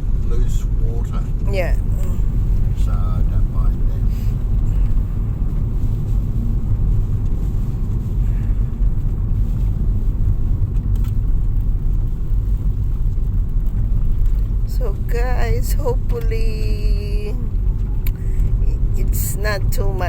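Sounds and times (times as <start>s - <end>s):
car engine rumble: 0.0s - 20.0s
road noise: 0.0s - 20.0s.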